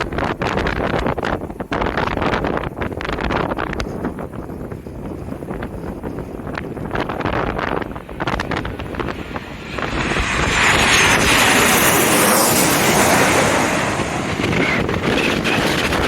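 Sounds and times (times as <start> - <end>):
wind buffeting microphone: 0.0 - 16.0
jet airliner passing overhead: 4.7 - 16.0.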